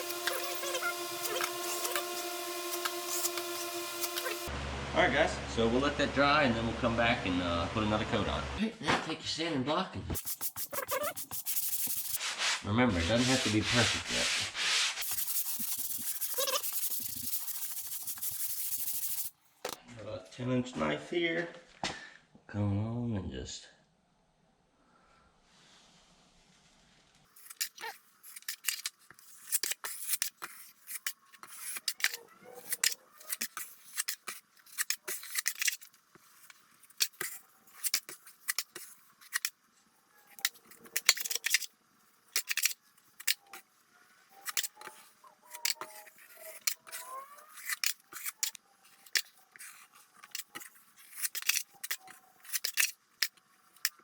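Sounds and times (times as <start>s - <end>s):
blade squealing on mud: 0.0s - 4.5s, 16.1s - 17.2s
drywall knife scraping compound: 0.0s - 4.5s, 10.2s - 19.3s, 27.3s - 39.6s, 40.3s - 41.7s, 42.3s - 43.7s, 44.3s - 54.0s.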